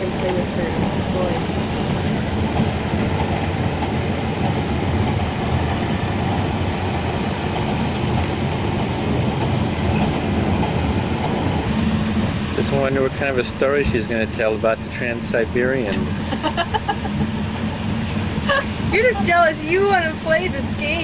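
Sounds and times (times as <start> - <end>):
train wheels rolling on rails: 0.0 - 21.0.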